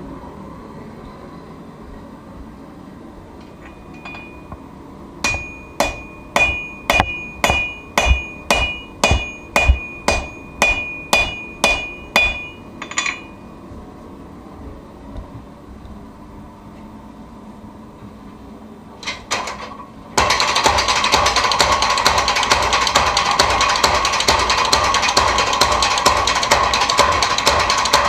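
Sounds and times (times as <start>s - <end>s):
hammer ringing on anvil: 3.7s - 4.5s, 5.2s - 13.6s.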